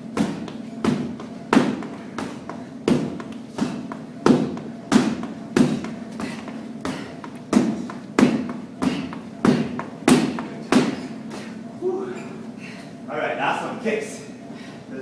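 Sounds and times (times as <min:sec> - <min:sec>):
strikes slapping on pads: 0:00.1 - 0:11.1.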